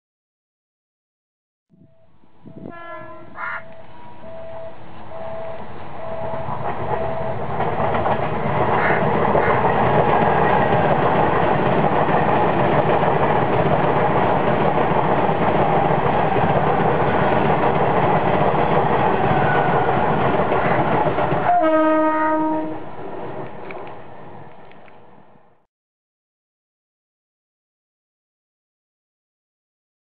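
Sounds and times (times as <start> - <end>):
train horn blast: 1.8 - 5.6, 21.4 - 22.9
train wheels clattering on rails: 3.5 - 25.1.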